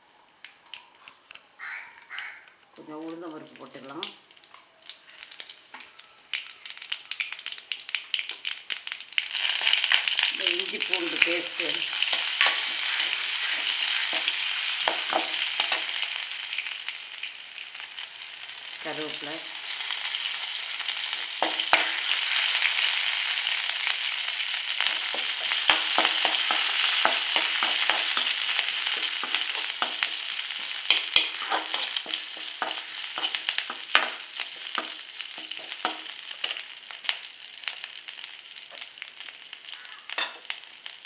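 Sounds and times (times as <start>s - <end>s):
spices sizzling in hot oil: 2.9s - 41.0s.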